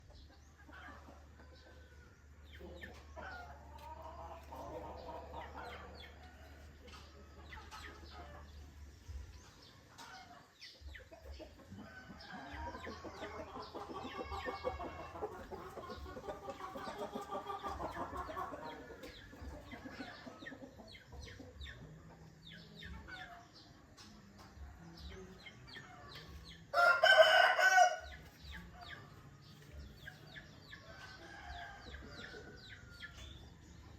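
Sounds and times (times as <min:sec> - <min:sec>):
chickens clucking: 0:00.0 - 0:33.9
small birds chirping: 0:00.0 - 0:33.9
distant rooster crowing: 0:26.7 - 0:28.0.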